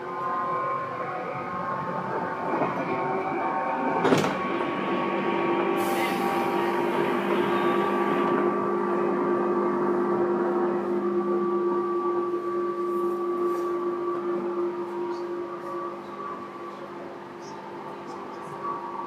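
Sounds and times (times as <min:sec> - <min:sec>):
train motor hum and whine: 0:00.0 - 0:19.0.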